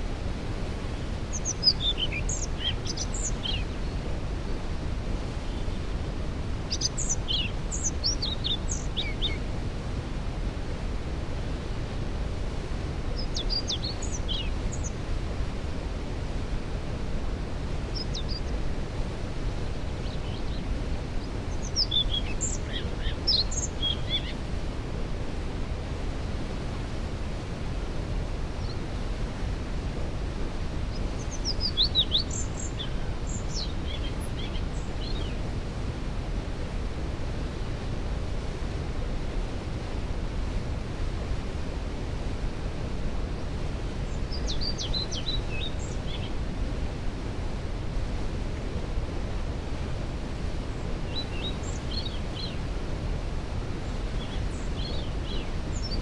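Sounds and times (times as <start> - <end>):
songbirds singing: 0.6 - 10.0, 12.5 - 16.6, 17.7 - 24.7, 28.2 - 29.2, 30.8 - 35.7, 43.5 - 47.2, 50.7 - 56.0.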